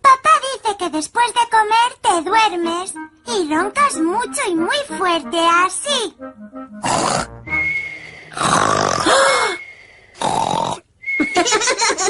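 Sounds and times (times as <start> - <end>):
cartoon snoring: 6.8 - 7.6, 8.2 - 10.9.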